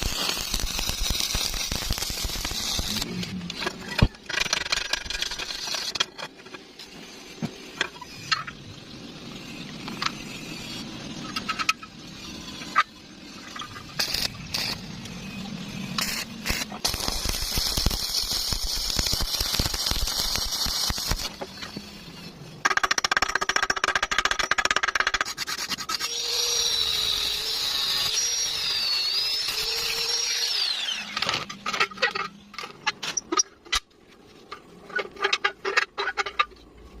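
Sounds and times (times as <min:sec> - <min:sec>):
metalworking power tool whine: 0:26.0 - 0:32.1.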